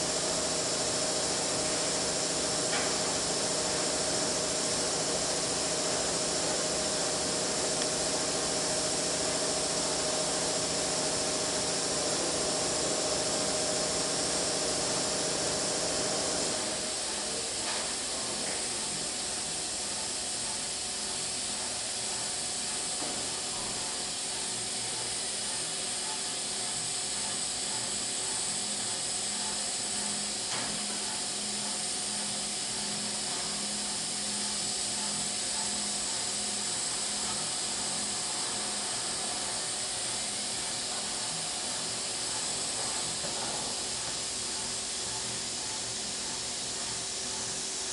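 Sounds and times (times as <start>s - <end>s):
machine tool hissing with tones: 0.0s - 47.9s.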